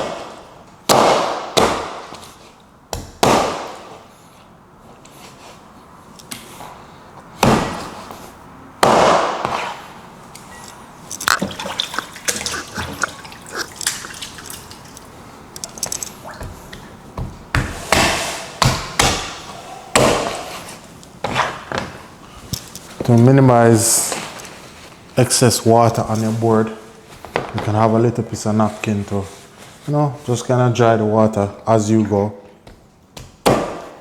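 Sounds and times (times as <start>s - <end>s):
wet splashing and dripping: 11.0s - 17.0s.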